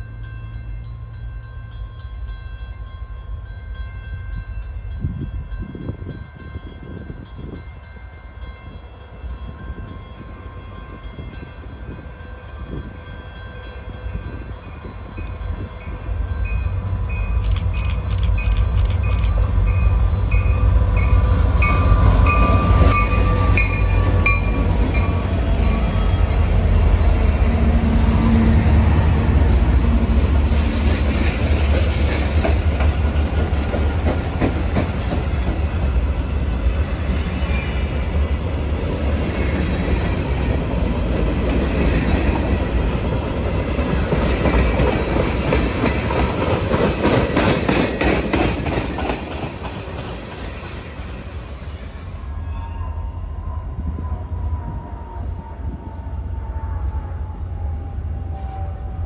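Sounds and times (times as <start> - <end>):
freight train rumbling past: 0.0 - 59.0
wheels clacking over rails: 30.6 - 36.3, 39.2 - 51.2.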